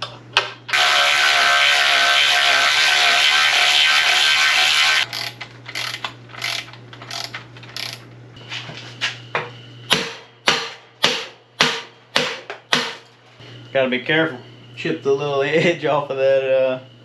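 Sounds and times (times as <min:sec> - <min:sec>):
ratchet wrench clicking: 0:05.1 - 0:08.0.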